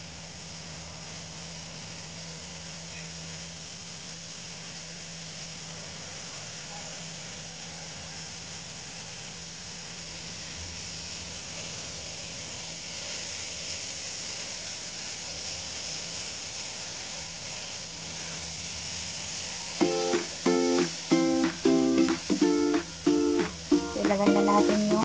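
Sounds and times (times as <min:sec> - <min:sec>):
potatoes sizzling in oil: 0:00.0 - 0:25.0
ukulele music: 0:19.8 - 0:25.0.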